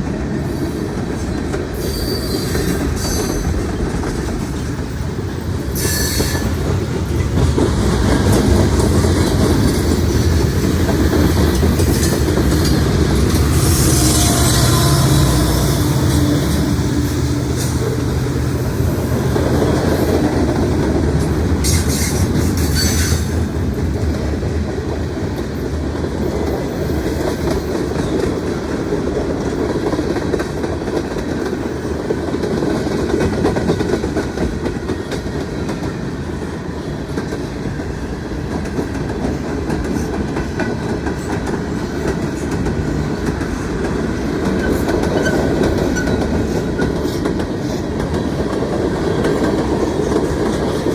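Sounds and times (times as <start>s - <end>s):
freight train rumbling past: 0.0s - 50.9s
wheels clattering over rail joints: 5.7s - 24.2s.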